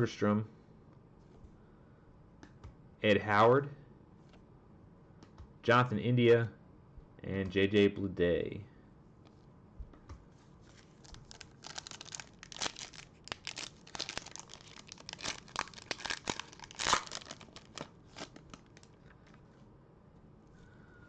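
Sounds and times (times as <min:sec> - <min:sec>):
wrapper tearing and crinkling: 0:10.7 - 0:19.0.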